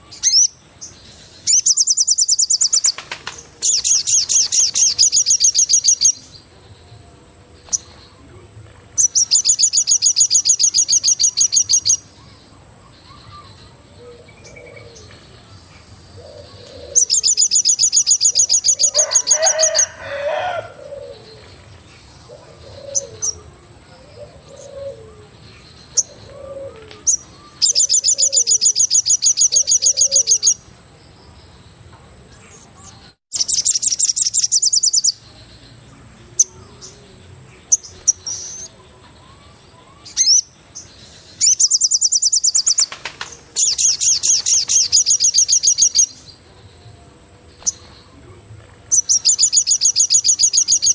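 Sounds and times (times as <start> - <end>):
soft low coos: 19.9 - 21.6, 22.2 - 27.0.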